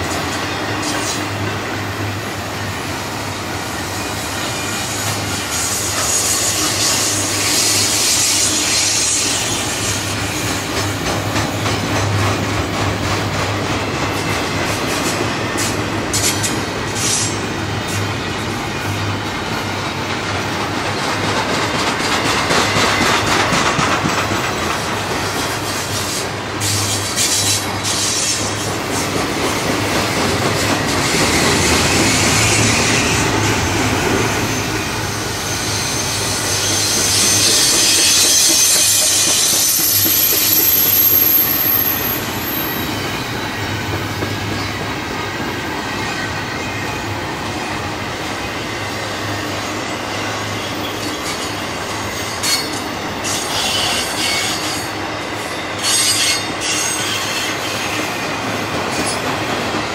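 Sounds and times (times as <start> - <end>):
freight train rumbling past: 0.0 - 59.9
high wheel squeal: 3.8 - 10.6, 25.6 - 29.1, 30.4 - 59.5.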